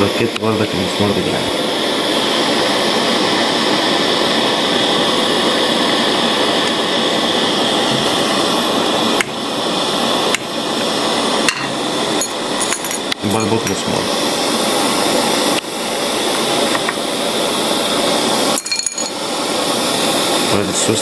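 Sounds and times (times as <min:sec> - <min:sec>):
gas torch flame hissing: 0:00.0 - 0:21.0.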